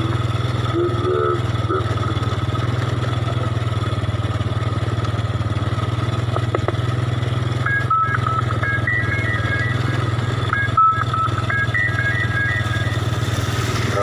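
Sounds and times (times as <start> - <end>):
motorcycle engine running: 0.0 - 14.0
looping electronic jingle: 7.2 - 14.0.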